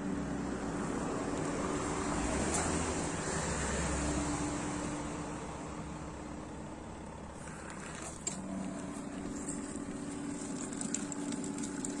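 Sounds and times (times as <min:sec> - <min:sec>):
washing machine motor hum: 0:06.4 - 0:12.0
water churning: 0:07.4 - 0:12.0.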